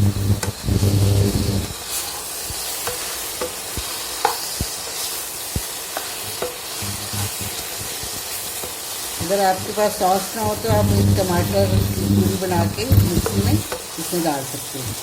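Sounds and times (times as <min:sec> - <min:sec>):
food sizzling in a frying pan: 0:00.0 - 0:15.0
spatula tapping on a pan: 0:02.5 - 0:04.8, 0:05.5 - 0:06.7
low steady hum: 0:10.4 - 0:13.6.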